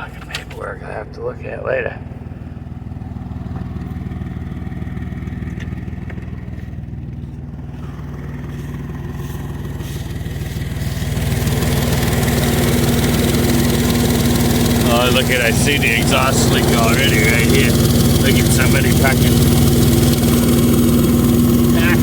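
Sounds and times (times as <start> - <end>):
pickup engine idling: 0.0 - 22.0.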